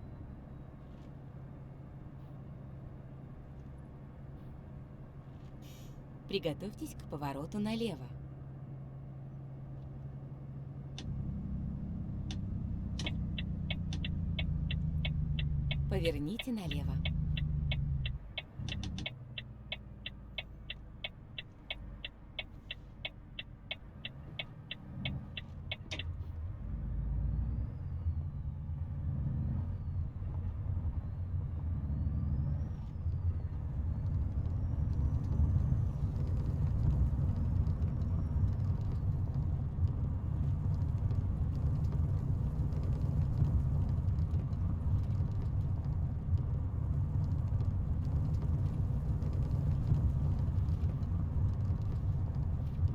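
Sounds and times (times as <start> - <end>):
truck diesel engine rumbling: 11.0 - 27.1
turn signal ticking: 12.2 - 26.3, 34.0 - 52.9.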